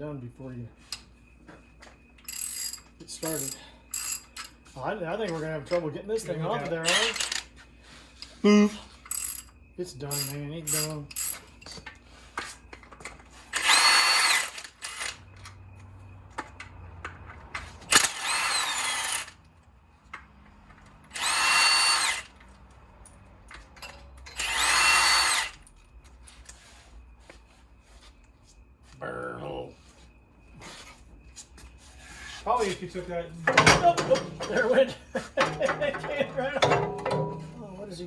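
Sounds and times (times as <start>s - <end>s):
tools clinking: 2.2s - 4.6s, 6.5s - 7.5s, 9.0s - 15.6s, 33.5s - 37.8s
impact wrench whine: 6.6s - 7.5s, 9.0s - 9.5s, 12.8s - 15.6s, 17.8s - 19.4s, 21.0s - 22.4s, 24.2s - 25.7s, 35.4s - 37.8s.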